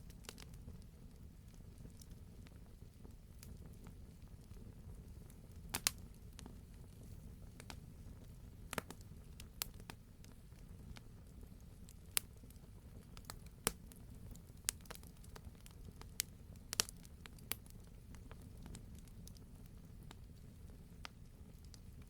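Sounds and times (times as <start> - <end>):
fire crackling and popping: 0.0 - 22.0
low rumble of fire: 0.0 - 22.0.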